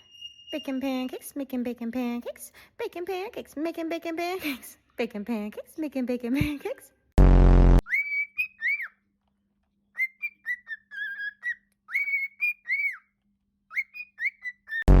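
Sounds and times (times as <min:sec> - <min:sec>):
parrot whistling: 0:00.0 - 0:01.1, 0:07.8 - 0:09.0, 0:10.0 - 0:14.9.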